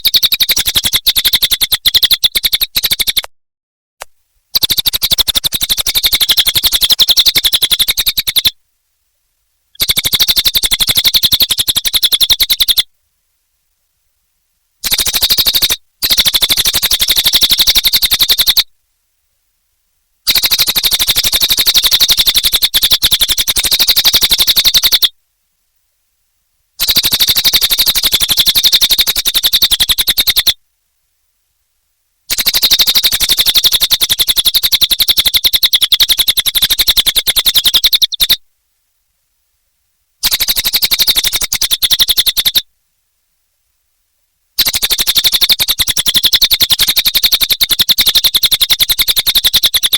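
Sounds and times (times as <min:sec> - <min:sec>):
bird song rapid trills: 0:00.0 - 0:03.3, 0:04.5 - 0:08.6, 0:09.7 - 0:12.9, 0:14.8 - 0:18.7, 0:20.3 - 0:25.1, 0:26.8 - 0:30.6, 0:32.3 - 0:38.4, 0:40.2 - 0:42.6, 0:44.6 - 0:49.9.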